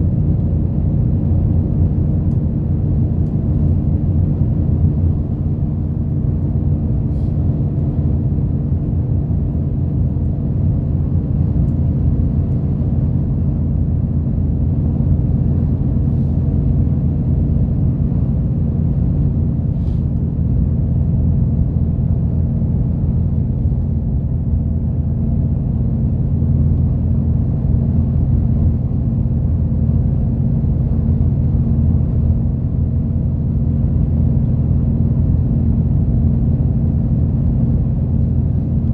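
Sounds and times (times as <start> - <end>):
bus engine droning: 0.0 - 38.9
low road rumble: 0.0 - 38.9.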